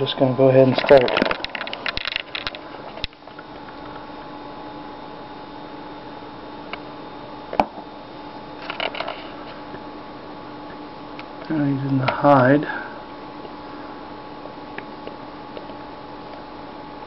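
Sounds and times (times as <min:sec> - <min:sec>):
steady background hum: 0:00.0 - 0:17.0
handling clicks and rustles: 0:00.6 - 0:03.2.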